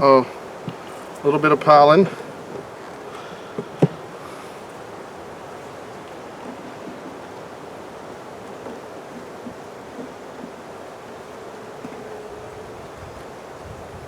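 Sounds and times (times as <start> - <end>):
sharp knocks: 3.6 - 4.1
wind on microphone: 11.8 - 14.0.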